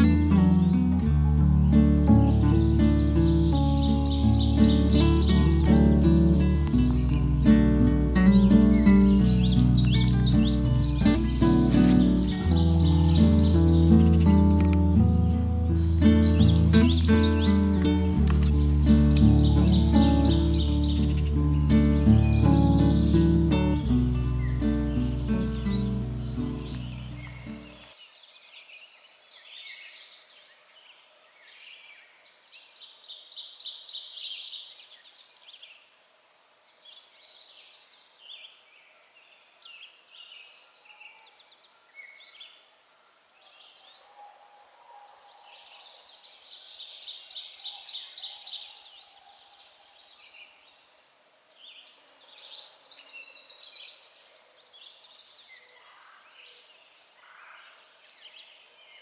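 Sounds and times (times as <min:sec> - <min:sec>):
songbirds singing trills: 0:00.0 - 0:27.9.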